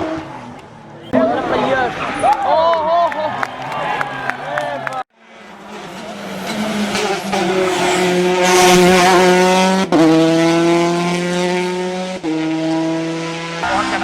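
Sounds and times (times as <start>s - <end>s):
rally car engine accelerating: 5.2s - 14.0s.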